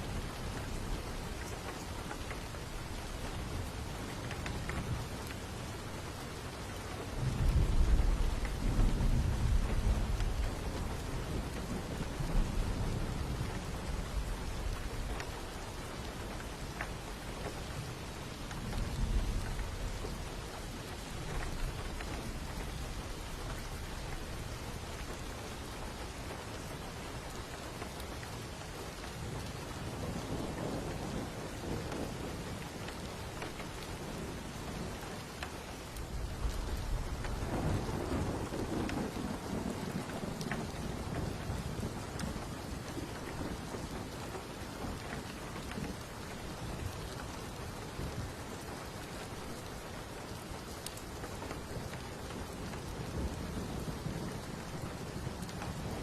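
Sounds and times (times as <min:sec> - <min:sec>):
steady rain falling: 0:00.0 - 0:56.0
thunder rumbling: 0:36.0 - 0:44.2.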